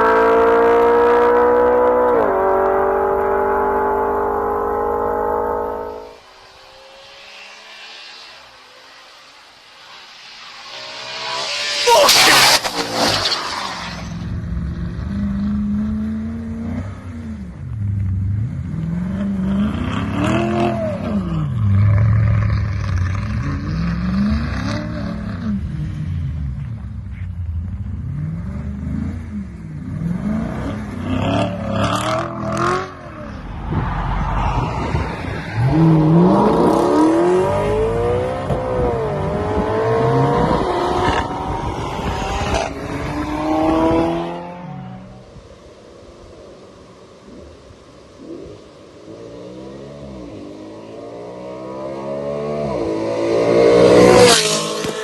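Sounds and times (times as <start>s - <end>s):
car engine revving: 0.0s - 17.6s, 27.8s - 45.3s, 48.2s - 55.0s
exhaust cracks: 6.2s - 15.1s.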